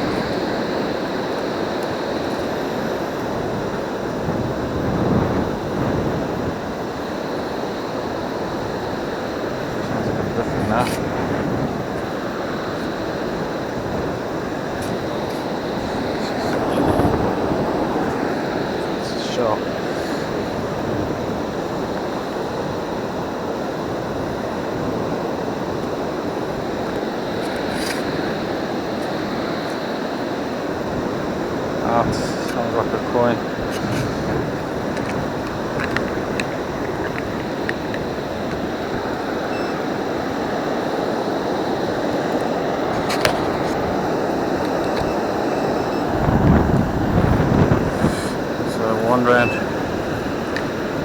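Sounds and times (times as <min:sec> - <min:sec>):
surf washing on beach: 0:00.0 - 0:51.0
wind rumbling on microphone: 0:00.0 - 0:51.0
faint steady high tone: 0:36.3 - 0:51.0.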